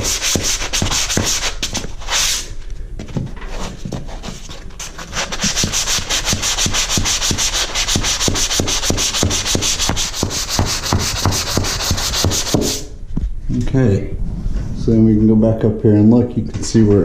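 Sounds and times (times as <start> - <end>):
hand sanding drywall corner: 0.0 - 2.6, 3.6 - 13.0.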